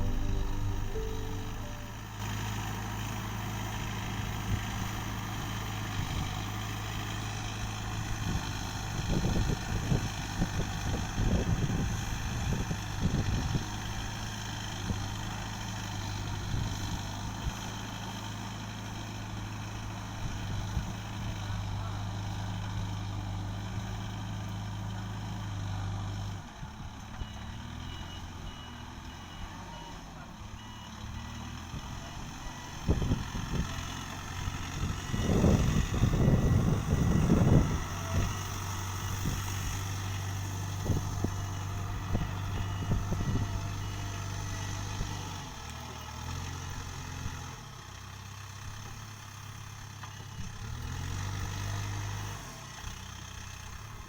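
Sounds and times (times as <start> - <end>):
reversing alarm beeping: 0.0 - 2.5
backhoe loader engine running: 0.0 - 54.0.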